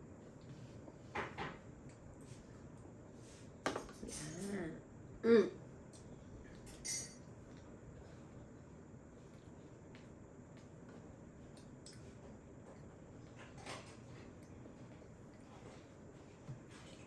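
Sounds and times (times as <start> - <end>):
tableware clinking and tapping: 6.7 - 7.2.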